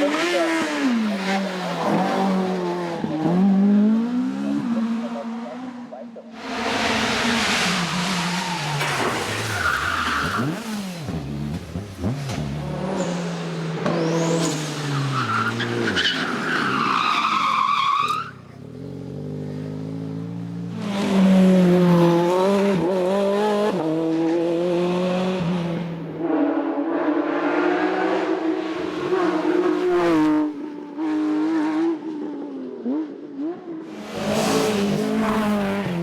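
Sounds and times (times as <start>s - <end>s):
racing car engines: 0.0s - 36.0s
tyre squeal: 13.9s - 18.6s.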